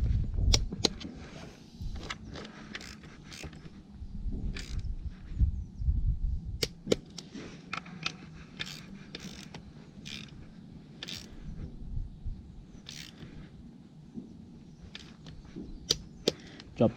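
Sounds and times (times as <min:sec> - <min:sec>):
wrench ratcheting and clicking: 0:02.4 - 0:03.7, 0:04.6 - 0:04.9, 0:08.6 - 0:10.4, 0:11.0 - 0:11.4, 0:12.8 - 0:13.3, 0:14.9 - 0:15.3.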